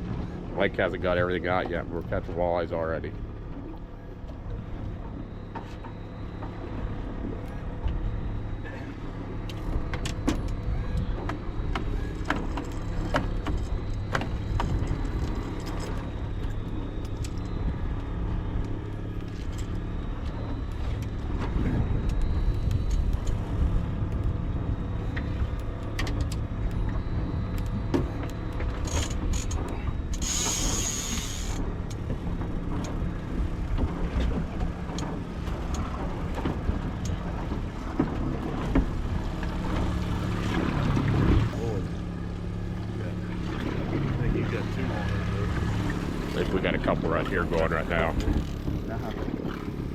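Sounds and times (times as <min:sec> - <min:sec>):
boat engine running: 0:00.0 - 0:49.9
gear clicking and knocking: 0:25.1 - 0:33.1.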